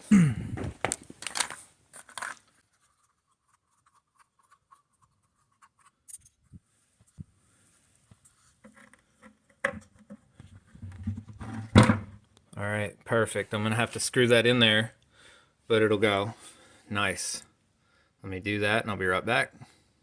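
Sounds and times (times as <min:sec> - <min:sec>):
plastic scraping and creaking: 0:00.6 - 0:02.6.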